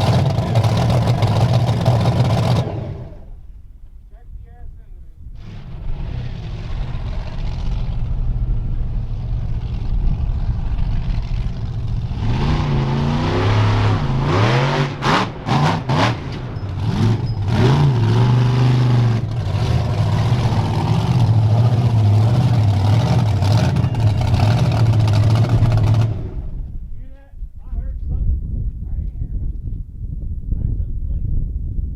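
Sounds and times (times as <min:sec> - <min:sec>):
monster truck engine revving: 0:00.0 - 0:03.4, 0:05.4 - 0:26.6.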